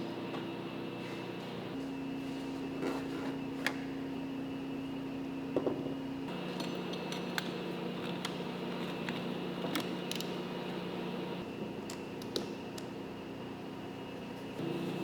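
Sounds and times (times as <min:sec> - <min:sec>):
factory machinery humming: 0:00.0 - 0:02.4, 0:06.2 - 0:11.7, 0:14.6 - 0:15.0.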